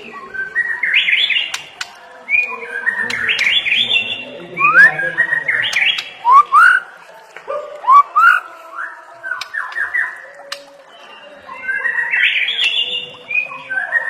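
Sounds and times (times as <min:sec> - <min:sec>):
bird singing whistled phrases: 0:02.3 - 0:06.8, 0:07.9 - 0:14.0.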